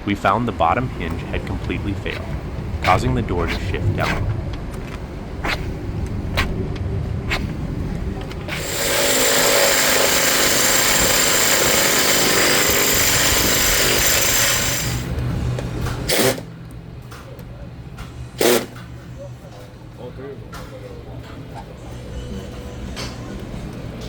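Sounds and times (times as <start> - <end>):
power tool running: 8.5 - 15.1.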